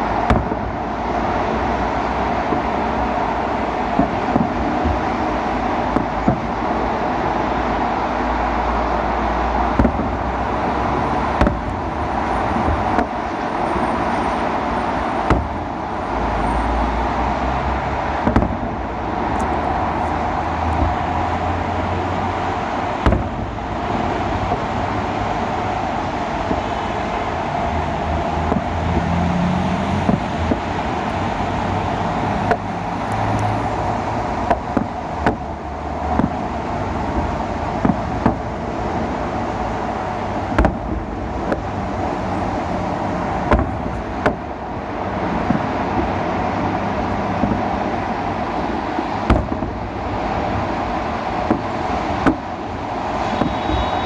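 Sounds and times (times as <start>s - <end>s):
city traffic noise: 0.0s - 54.0s
fireworks bangs: 0.1s - 17.4s, 18.1s - 27.3s, 32.4s - 42.3s, 51.3s - 54.0s.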